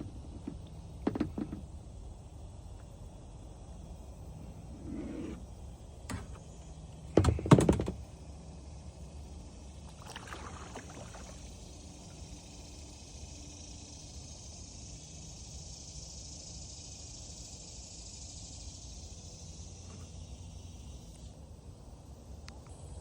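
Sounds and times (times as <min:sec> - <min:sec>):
soft scraping: 0:04.6 - 0:05.4.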